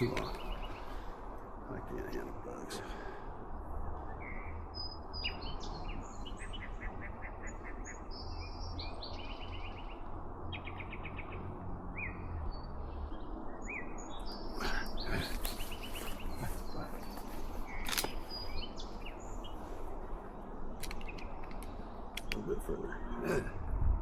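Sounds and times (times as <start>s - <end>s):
songbirds singing: 0.0s - 24.0s
sharp clicks: 20.8s - 22.5s.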